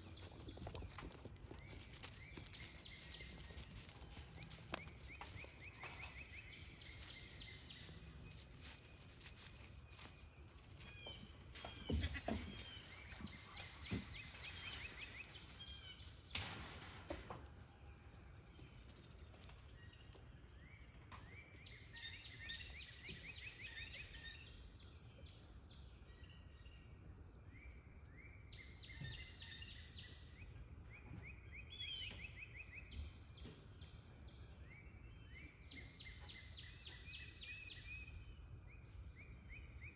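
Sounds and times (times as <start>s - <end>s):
steady outdoor noise: 0.0s - 21.9s
birds chirping in short trills: 1.6s - 16.4s.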